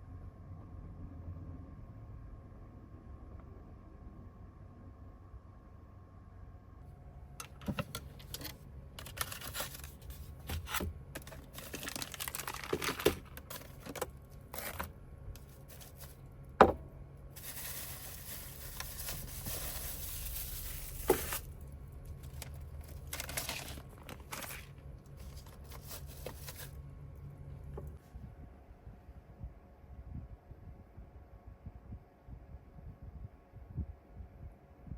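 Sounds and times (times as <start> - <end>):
rustling and crinkling packaging: 7.4 - 28.0.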